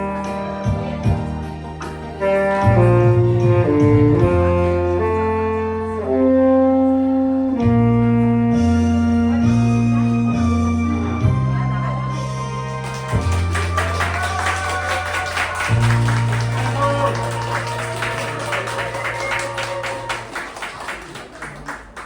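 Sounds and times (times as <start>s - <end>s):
backing accompaniment with bass: 0.0s - 20.9s
tenor saxophone melody: 2.1s - 10.8s, 12.6s - 20.8s.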